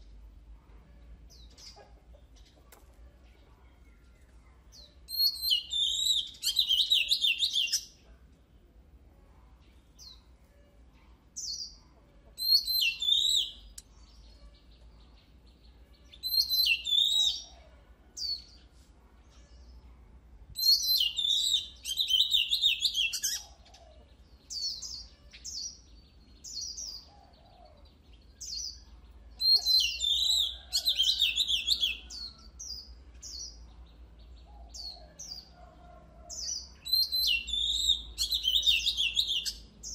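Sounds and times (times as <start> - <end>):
bird singing whistled notes: 4.8 - 8.0, 12.4 - 14.6, 16.1 - 17.5, 20.6 - 23.6, 28.4 - 32.4, 36.8 - 39.9.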